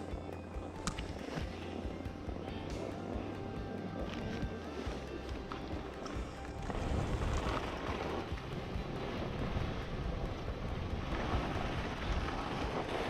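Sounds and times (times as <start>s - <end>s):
wind rushing over microphone: 6.6s - 13.0s.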